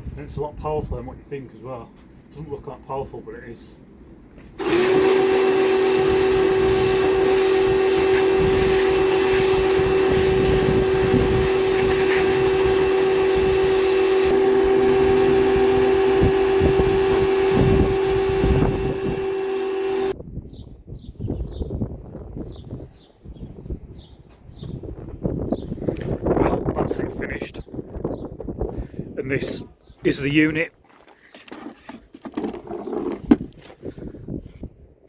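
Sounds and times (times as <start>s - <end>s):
water jet hissing: 4.6s - 16.1s
pressure washer motor hum: 4.6s - 20.2s.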